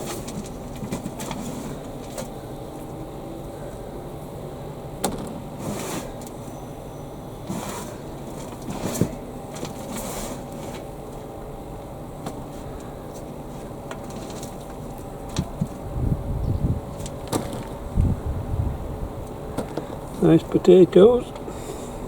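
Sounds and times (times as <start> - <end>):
low background hum: 0.0 - 22.0
soil and foliage scraping: 7.4 - 11.3.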